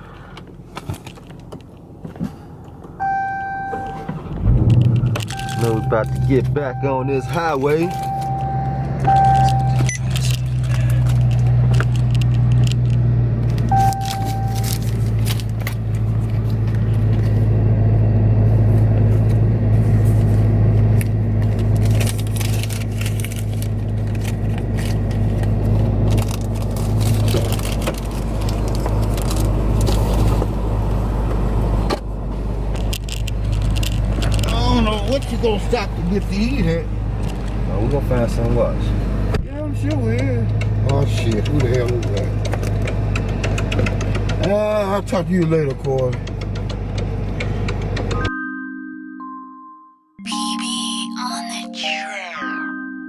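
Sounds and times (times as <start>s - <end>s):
car engine and road drone: 0.0s - 48.3s
short beeps: 3.0s - 4.3s, 5.2s - 10.1s, 13.7s - 14.8s.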